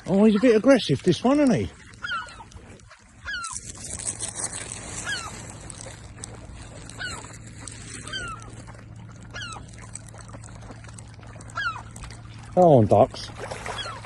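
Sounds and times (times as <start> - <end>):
steady low hum: 0.0 - 14.0
short falling animal calls: 4.8 - 5.6, 6.9 - 8.7.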